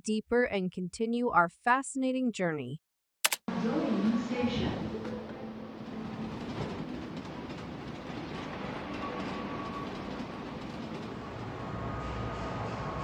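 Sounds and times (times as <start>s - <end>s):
train rolling on tracks: 4.2s - 13.0s.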